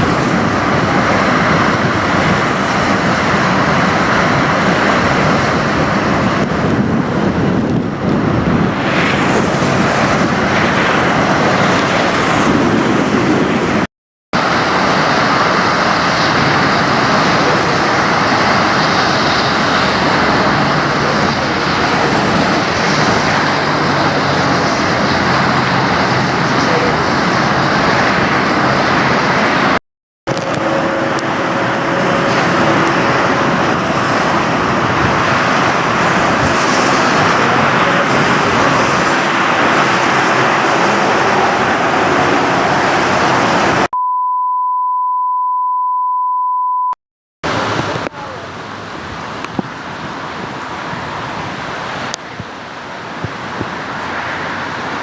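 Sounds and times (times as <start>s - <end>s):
road traffic rush: 0.0s - 43.9s, 47.4s - 55.0s
high-pitched beep tone: 44.0s - 47.0s.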